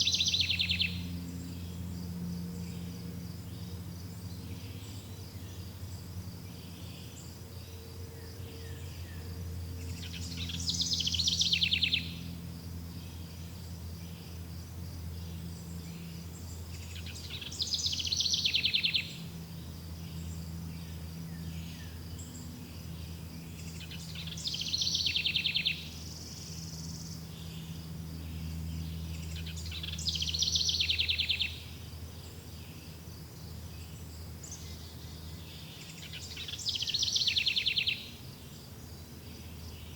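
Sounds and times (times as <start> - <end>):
songbird trilling: 0.0 - 1.9, 8.5 - 14.3, 15.6 - 33.0, 33.8 - 38.2.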